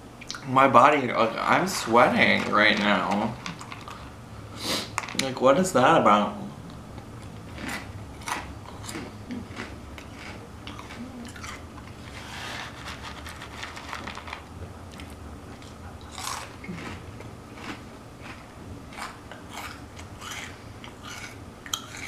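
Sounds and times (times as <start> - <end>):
chewing crunchy snack: 1.7 - 4.1, 7.2 - 22.0.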